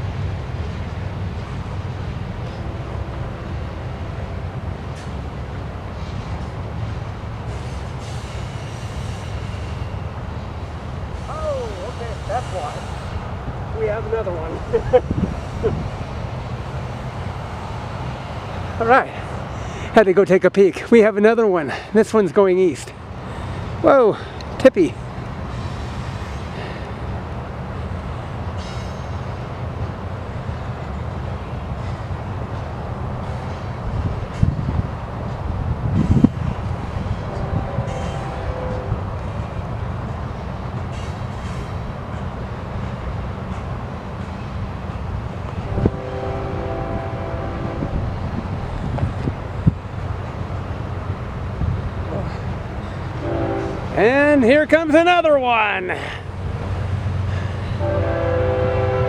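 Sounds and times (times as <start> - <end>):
diesel freight train rumbling: 0.0 - 59.0.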